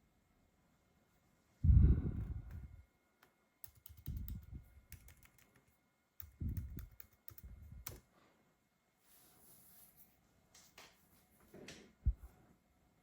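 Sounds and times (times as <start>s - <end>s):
laptop keys clicking: 3.6s - 8.0s.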